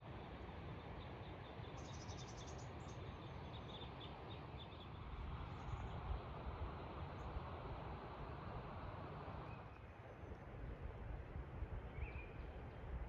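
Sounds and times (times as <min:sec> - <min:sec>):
background hiss and low rumble: 0:00.0 - 0:13.0
small bird chirping: 0:01.2 - 0:05.0.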